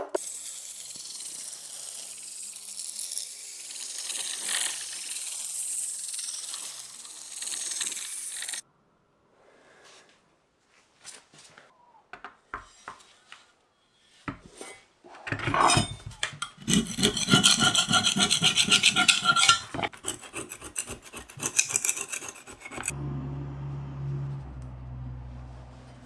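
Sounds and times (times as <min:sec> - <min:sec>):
scraping strokes: 0:14.4 - 0:23.0
machine humming: 0:22.9 - 0:26.0.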